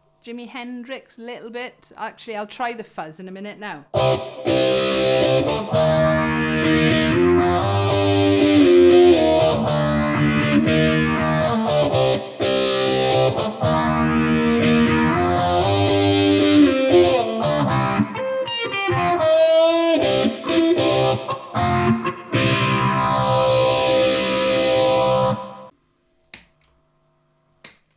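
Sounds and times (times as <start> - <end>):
distorted electric ukulele with phaser: 3.9 - 25.7.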